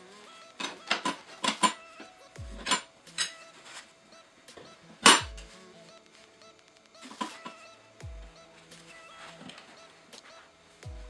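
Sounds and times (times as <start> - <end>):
electronic music with bass sweeps: 1.8 - 6.2, 7.3 - 11.0.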